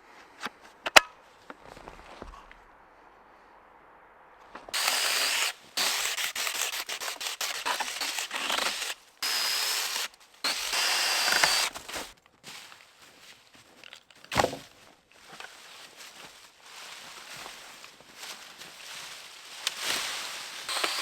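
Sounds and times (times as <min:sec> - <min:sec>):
hand saw cutting wood: 0:04.8 - 0:12.1, 0:20.7 - 0:21.0.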